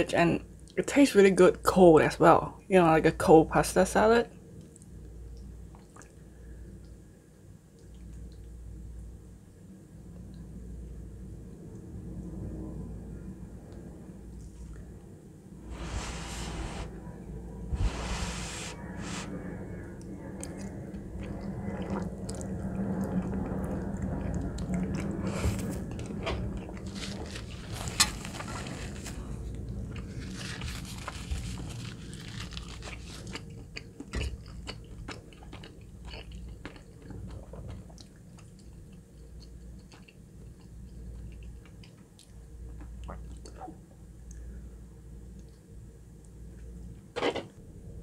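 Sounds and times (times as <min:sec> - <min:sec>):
person chewing food: 0:20.4 - 0:26.0, 0:29.6 - 0:43.6.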